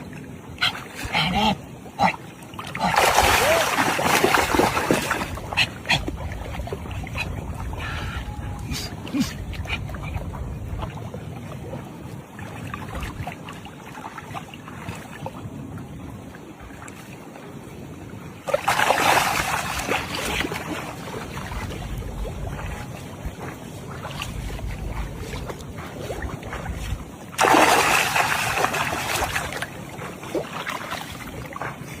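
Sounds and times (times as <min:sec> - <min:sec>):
bursts of splashing water: 0:02.6 - 0:05.6, 0:24.1 - 0:31.7
steady low rumble: 0:04.6 - 0:13.3, 0:19.7 - 0:27.4.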